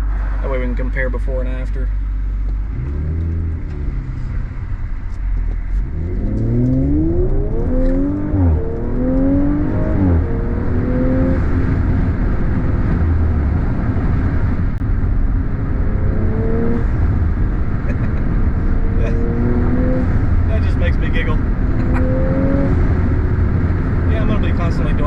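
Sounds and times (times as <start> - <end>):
car engine accelerating hard: 0.0 - 25.0.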